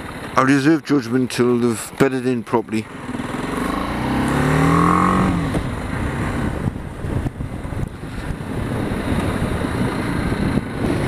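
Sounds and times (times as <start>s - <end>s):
road and wind rumble: 0.0s - 11.0s
motorcycle engine accelerating: 2.8s - 11.0s.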